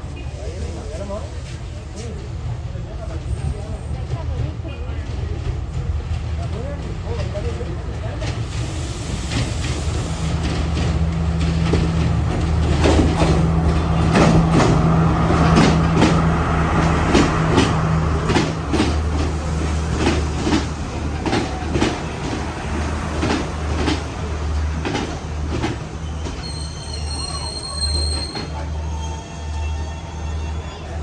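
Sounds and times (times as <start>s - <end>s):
train running drone: 0.0s - 31.0s
train wheels clacking over rail joints: 4.0s - 28.8s.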